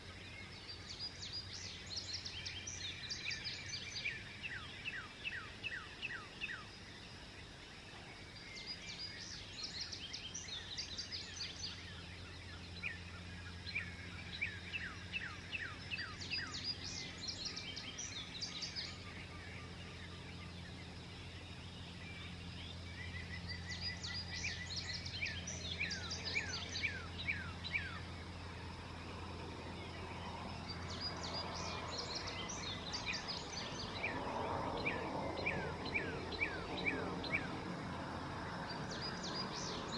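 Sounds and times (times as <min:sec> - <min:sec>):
songbirds singing: 0:00.0 - 0:39.9
steady low hum: 0:10.4 - 0:39.9.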